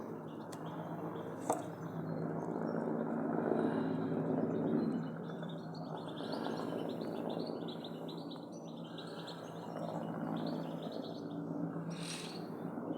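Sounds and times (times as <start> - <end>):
finch singing: 11.9 - 12.5.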